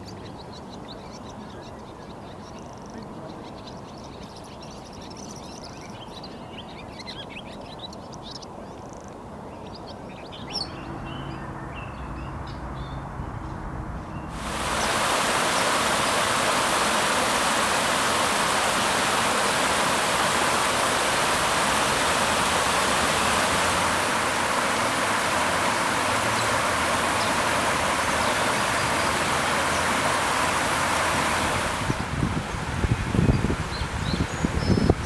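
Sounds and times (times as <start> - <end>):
waterfall rushing: 14.3 - 34.4.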